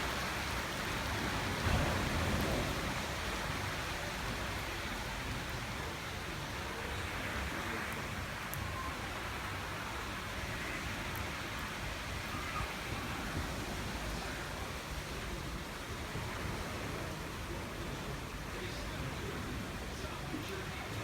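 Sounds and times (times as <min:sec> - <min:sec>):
rain falling into a pool: 0:00.0 - 0:21.0.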